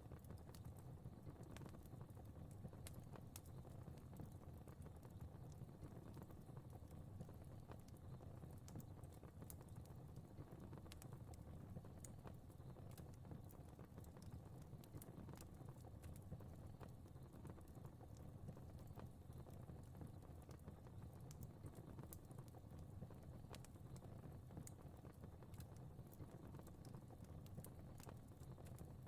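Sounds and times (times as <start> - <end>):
wood fire pops and snaps: 7.7 - 16.2.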